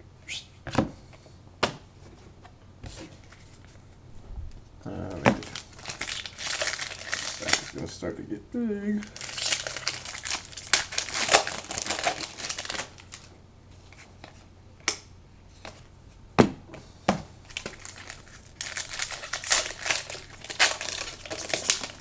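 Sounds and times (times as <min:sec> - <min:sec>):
card pack wrappers crinkling: 0:05.4 - 0:08.0, 0:09.0 - 0:13.3, 0:17.4 - 0:22.0.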